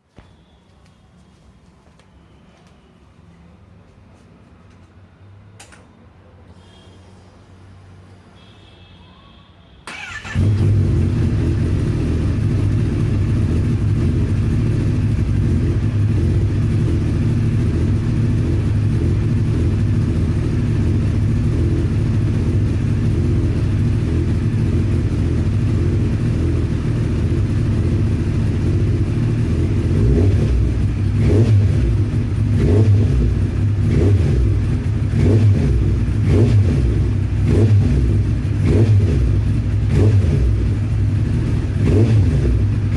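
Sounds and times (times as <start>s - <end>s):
motorcycle engine idling: 9.9s - 41.8s
motorcycle throttle revs: 9.9s - 42.9s.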